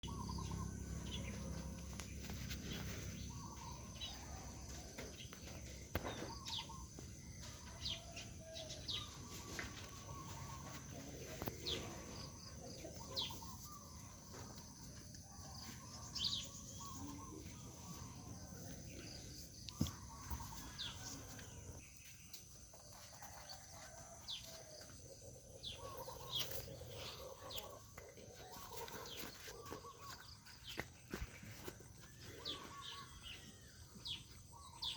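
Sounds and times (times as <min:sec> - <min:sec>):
birds chirping: 0:00.0 - 0:22.6, 0:23.2 - 0:34.9.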